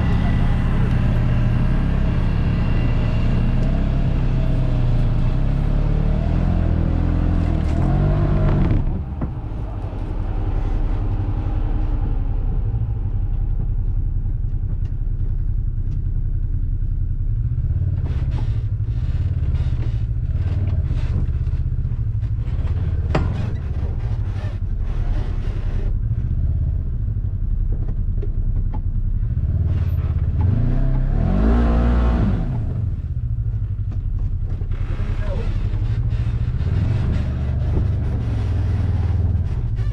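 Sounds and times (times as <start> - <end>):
utility vehicle engine: 0.0 - 39.9
rattles and knocks: 18.0 - 25.7, 33.8 - 39.9.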